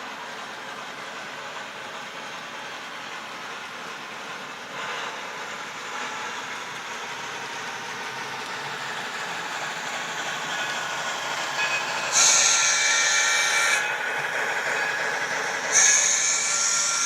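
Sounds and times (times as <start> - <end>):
model locomotive rumble: 0.0 - 17.0
steam hiss with whistle tone: 4.2 - 17.0.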